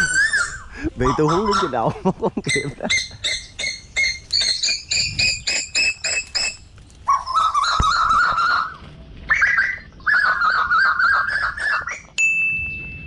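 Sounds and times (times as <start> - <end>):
bird sharp repeated chirps: 2.5 - 12.9
bird warbling trills: 2.5 - 12.9.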